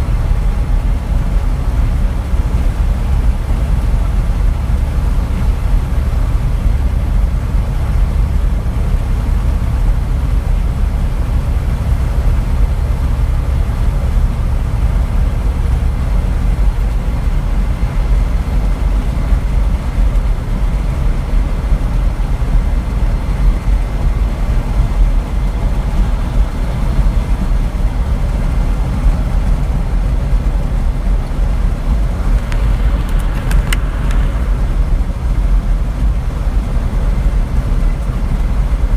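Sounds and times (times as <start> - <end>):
truck engine and road rumble: 0.0 - 38.9
sharp clicks: 32.4 - 34.3.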